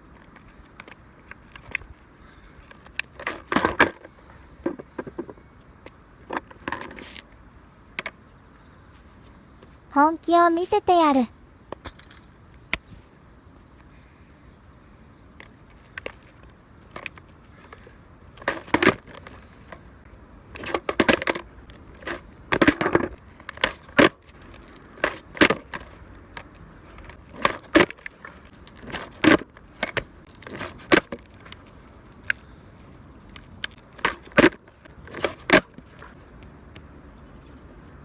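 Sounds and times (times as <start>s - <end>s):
skateboard clattering on pavement: 0.4s - 7.2s, 15.7s - 19.8s, 20.5s - 31.7s, 33.4s - 36.2s.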